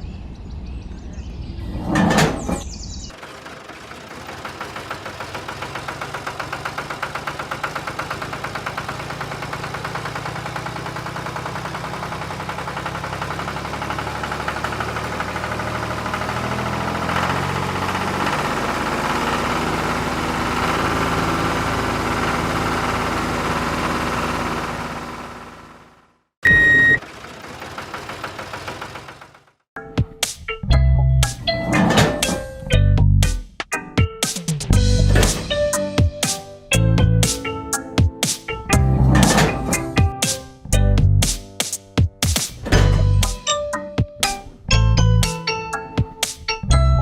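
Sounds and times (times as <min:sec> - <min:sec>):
small tractor engine running: 0:03.1 - 0:29.7, 0:38.7 - 0:40.4, 0:42.6 - 0:43.4.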